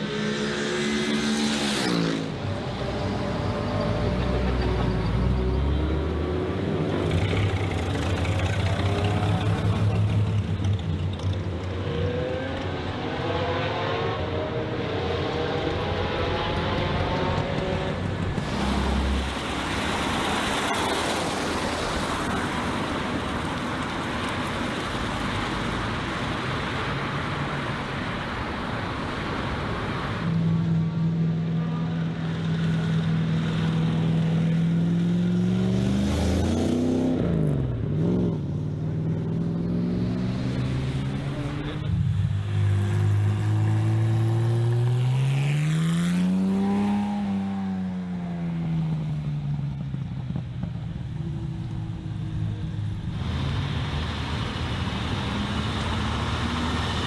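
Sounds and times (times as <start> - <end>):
car engine revving: 0.0 - 30.4, 51.7 - 57.0
car engine accelerating: 0.0 - 57.0.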